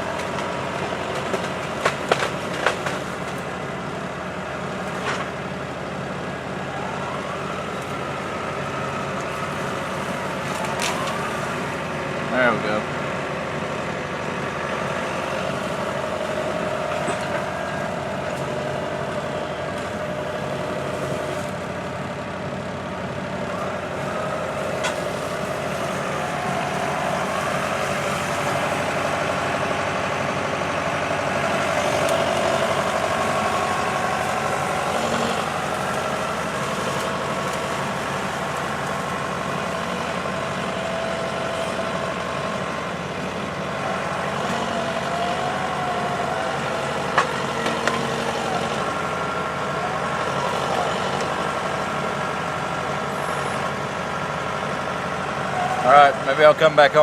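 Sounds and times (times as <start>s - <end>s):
tractor diesel engine: 0.0s - 57.0s
sharp crack: 0.2s - 3.5s.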